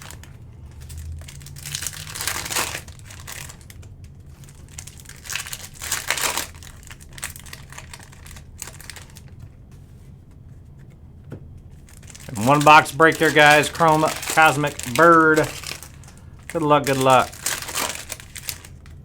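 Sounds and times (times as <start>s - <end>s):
foil wrappers crinkling and tearing: 0.0s - 9.5s, 11.8s - 19.0s.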